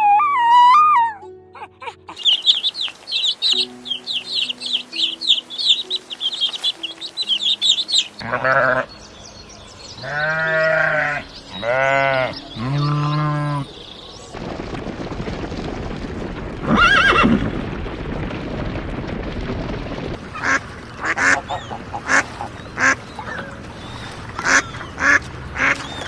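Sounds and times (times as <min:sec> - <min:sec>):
soft background music: 0:00.0 - 0:14.4
birds chirping: 0:00.0 - 0:14.6, 0:20.2 - 0:26.0
goat or sheep bleating: 0:08.2 - 0:08.9, 0:10.0 - 0:13.6.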